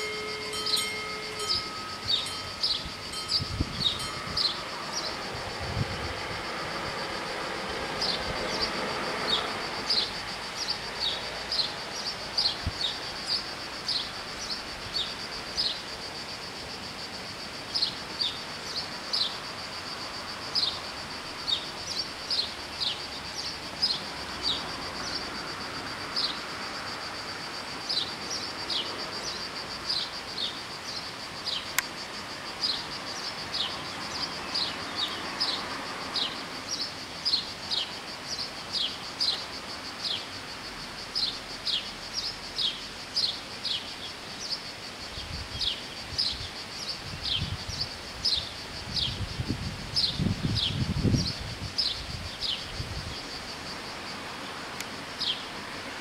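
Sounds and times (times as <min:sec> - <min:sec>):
bird chirping: 0:00.0 - 0:05.2
crossing bells ringing: 0:00.0 - 0:05.6
cicadas buzzing: 0:00.0 - 0:56.0.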